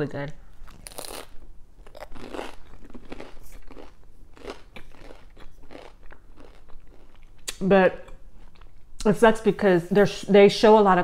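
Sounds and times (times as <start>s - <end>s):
person chewing crunchy bread: 0.5s - 9.0s.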